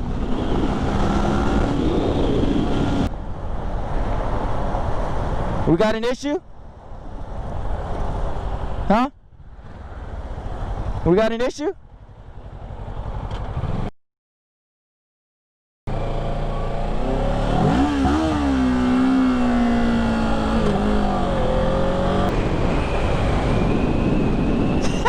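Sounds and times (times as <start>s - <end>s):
road and wind noise: 0.0s - 13.9s, 15.9s - 25.0s
vehicle engine revving: 15.9s - 22.4s.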